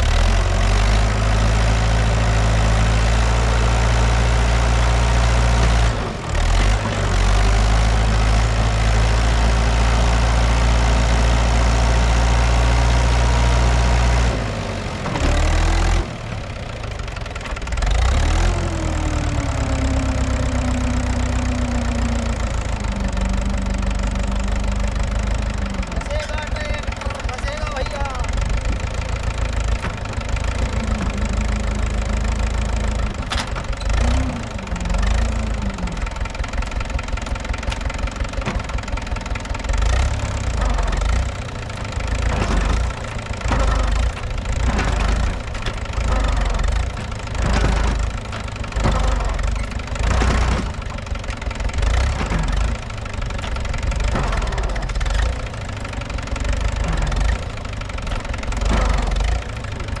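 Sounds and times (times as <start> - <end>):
tractor diesel engine surging: 0.0 - 60.0.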